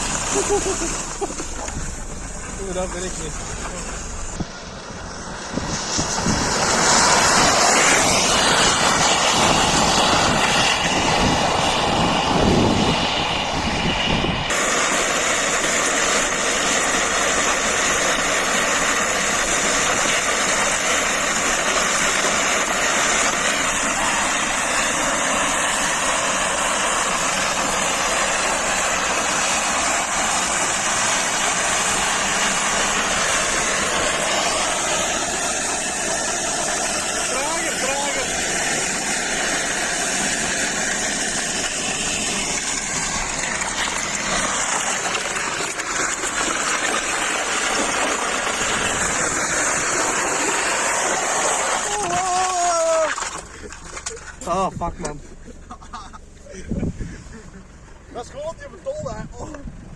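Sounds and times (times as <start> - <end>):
heavy low rumble: 0.0 - 15.2
vehicle rushing noise: 0.0 - 16.4.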